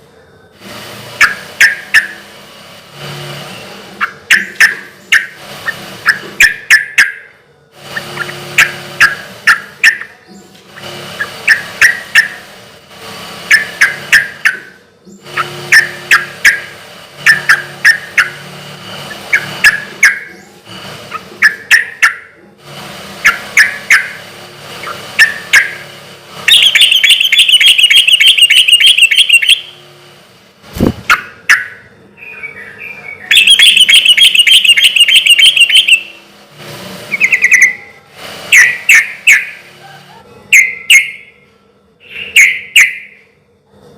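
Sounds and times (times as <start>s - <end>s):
bird singing bubbly phrases: 26.5s - 29.7s.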